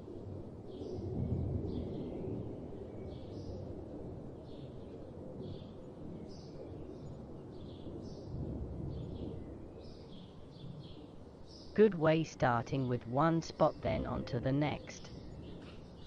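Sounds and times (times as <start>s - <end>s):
bird chirping: 9.9s - 16.0s
low outdoor rumble: 11.7s - 15.6s.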